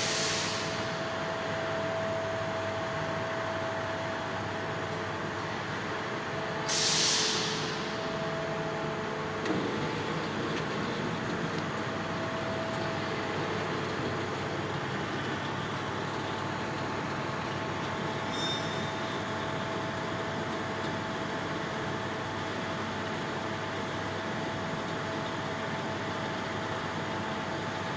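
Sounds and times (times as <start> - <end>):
air hiss: 0.0 - 0.8, 6.7 - 8.0
laser cutting machine hum: 0.0 - 27.9.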